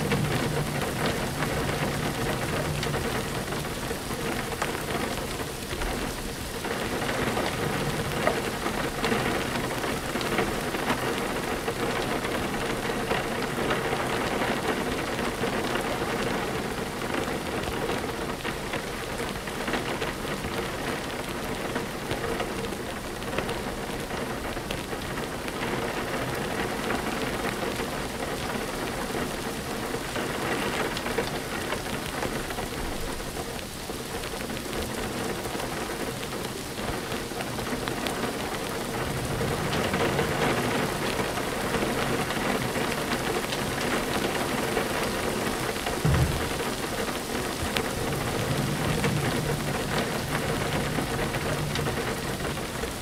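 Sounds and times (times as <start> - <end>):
thunder rumbling: 0.0 - 22.2, 36.8 - 53.0
steady rain patter: 0.0 - 53.0.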